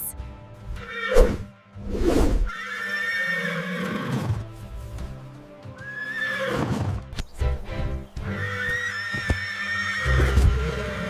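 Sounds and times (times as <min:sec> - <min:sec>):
background music: 0:00.0 - 0:11.0
horse neighing: 0:02.5 - 0:04.4, 0:05.8 - 0:07.0, 0:08.3 - 0:11.0.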